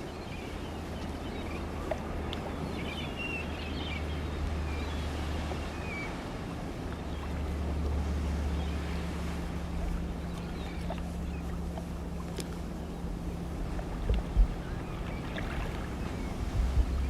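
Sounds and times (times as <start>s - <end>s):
steady low rumble: 0.0s - 17.0s
small click: 12.3s - 12.6s.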